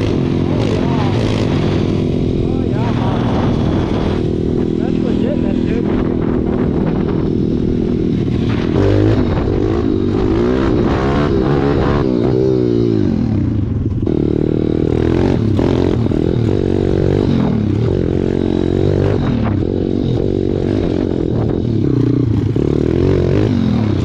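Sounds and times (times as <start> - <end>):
pit bike engine revving: 0.0 - 24.0.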